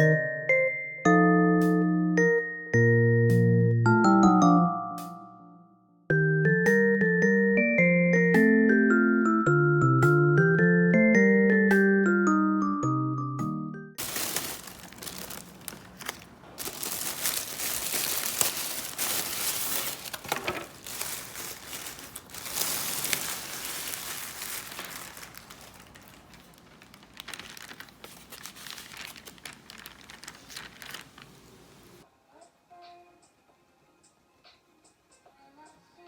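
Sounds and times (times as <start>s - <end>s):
crinkling and rustling: 14.0s - 32.0s.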